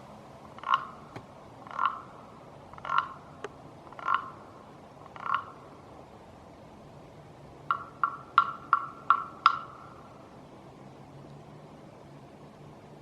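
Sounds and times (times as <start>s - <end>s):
frog-like croaking: 0.5s - 5.8s, 7.7s - 10.2s.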